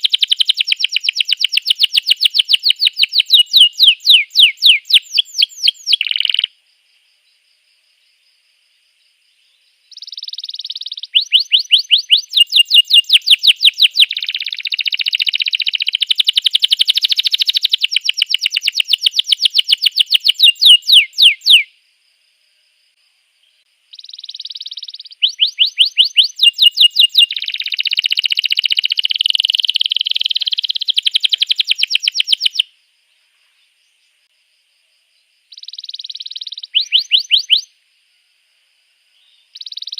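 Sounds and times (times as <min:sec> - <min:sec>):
canary singing trills: 0:00.0 - 0:06.5, 0:09.4 - 0:21.7, 0:23.9 - 0:32.7, 0:35.5 - 0:37.8, 0:39.2 - 0:39.9.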